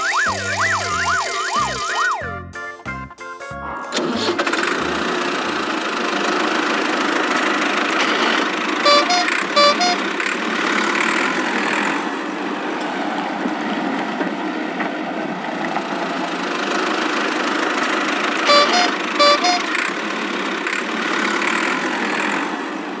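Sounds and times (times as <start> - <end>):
cartoon engine sound effect: 0.0 - 2.7, 3.4 - 6.4, 8.0 - 10.1, 18.4 - 19.8
short horn honks: 8.8 - 10.1, 18.4 - 19.8.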